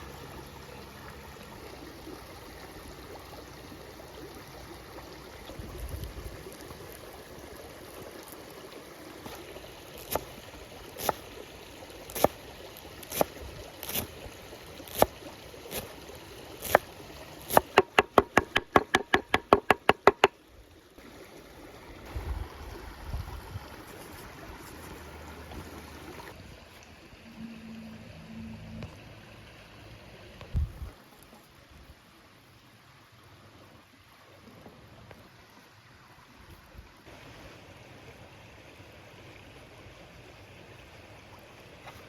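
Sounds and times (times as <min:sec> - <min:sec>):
running water rush: 0:00.0 - 0:42.0
sharp knocks on hard surface: 0:17.8 - 0:20.3.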